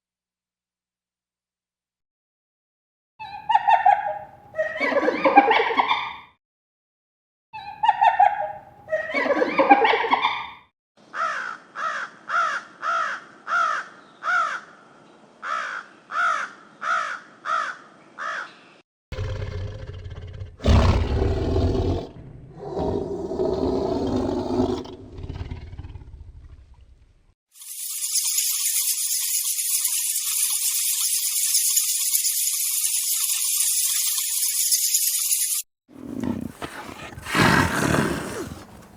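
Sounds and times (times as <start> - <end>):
young farm animals calling: 36.0 - 38.9.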